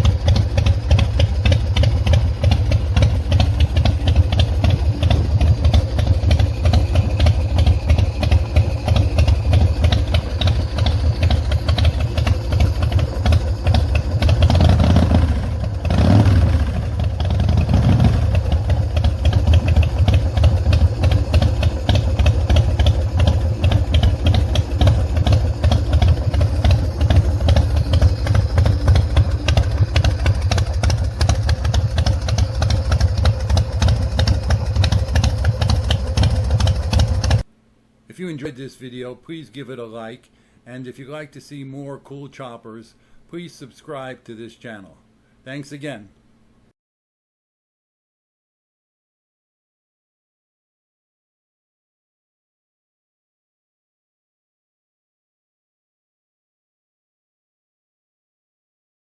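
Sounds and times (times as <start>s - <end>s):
motorcycle engine idling and revving: 0.0s - 37.5s.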